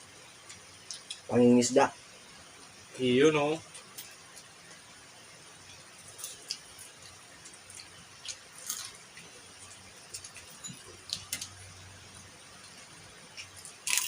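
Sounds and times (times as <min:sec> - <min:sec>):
person chewing food: 0:05.6 - 0:14.0.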